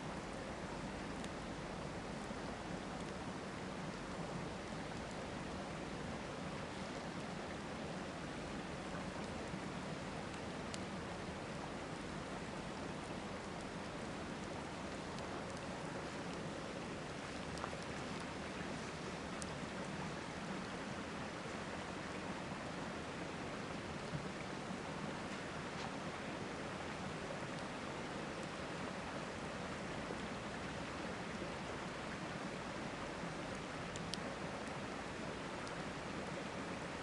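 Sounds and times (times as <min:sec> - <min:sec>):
river water flowing: 0:00.0 - 0:37.0
campfire wood popping: 0:12.9 - 0:18.6.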